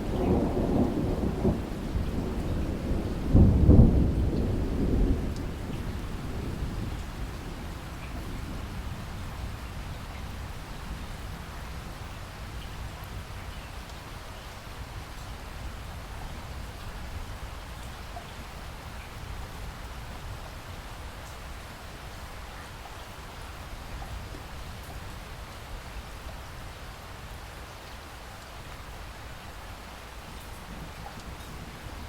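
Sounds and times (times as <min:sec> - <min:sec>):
steady rainfall: 0:00.0 - 0:32.0.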